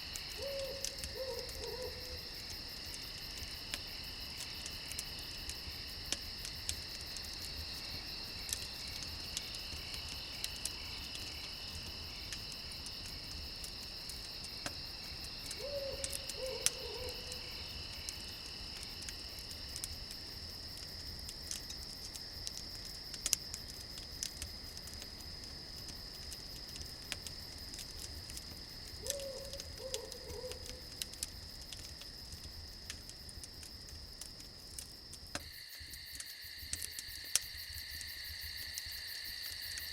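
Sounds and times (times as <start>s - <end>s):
campfire crackling: 0.0s - 39.9s
crickets chirping: 0.0s - 39.9s
owl hooting: 0.4s - 2.2s, 15.6s - 17.3s, 29.1s - 30.6s.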